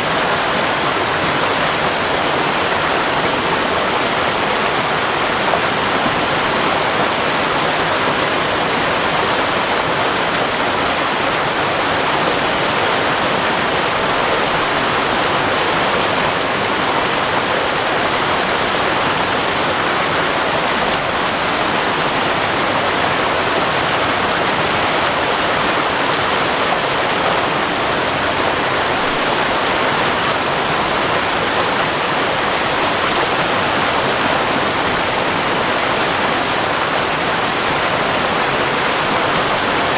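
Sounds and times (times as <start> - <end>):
waterfall rushing over rock: 0.0 - 39.9.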